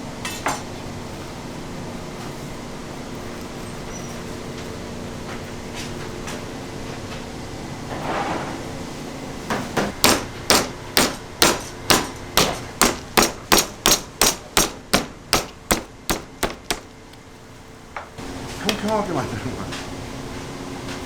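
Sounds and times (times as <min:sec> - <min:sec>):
raw meat being struck: 0:10.0 - 0:16.9.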